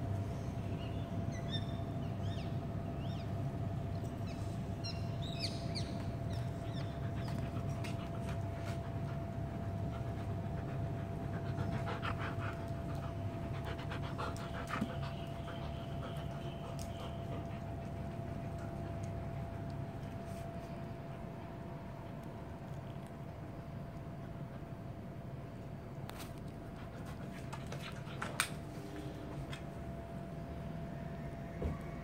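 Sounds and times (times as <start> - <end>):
faint constant whine: 0.0 - 32.0
steady low hum: 0.0 - 32.0
small birds chirping: 4.0 - 8.2.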